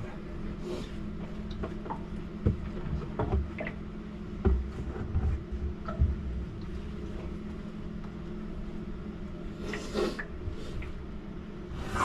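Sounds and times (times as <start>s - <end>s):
knocks and thumps: 4.4s - 6.3s.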